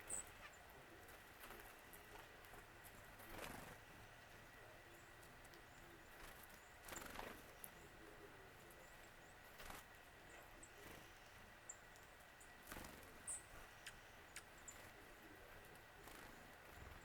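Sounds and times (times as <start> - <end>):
noisy bird calls: 0.0 - 2.2, 3.0 - 17.0.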